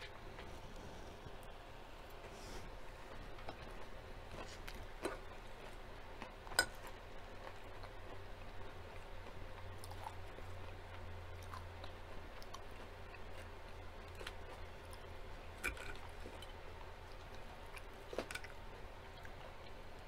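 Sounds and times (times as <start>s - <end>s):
chewing salad: 3.0s - 20.0s.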